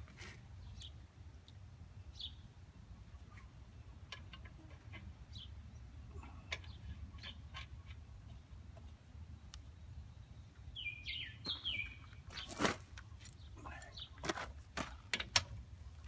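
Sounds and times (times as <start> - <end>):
faint bird chirps: 9.9 - 12.5.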